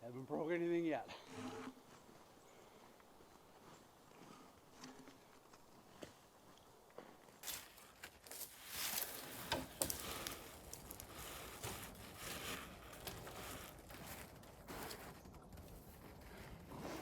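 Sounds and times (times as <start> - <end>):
rustling and scraping: 7.4 - 17.0.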